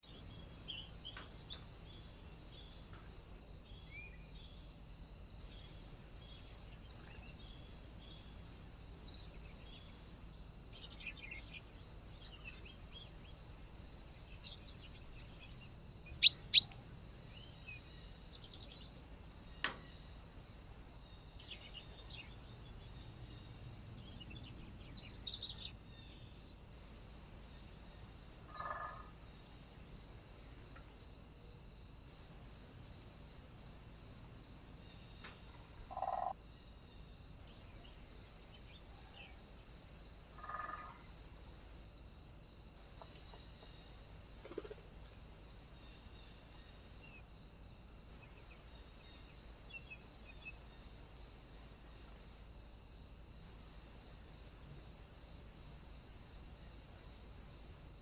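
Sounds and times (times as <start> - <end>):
small birds chirping: 0.0 - 20.3, 21.1 - 26.3
loud sharp bird calls: 16.2 - 16.8.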